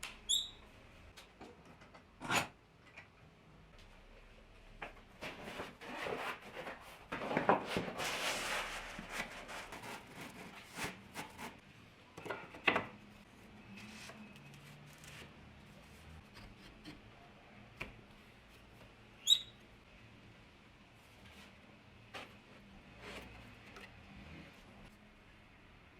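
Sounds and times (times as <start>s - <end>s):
clicks and knocks of tools: 1.1s - 3.2s
rubbing or scraping: 5.2s - 11.6s.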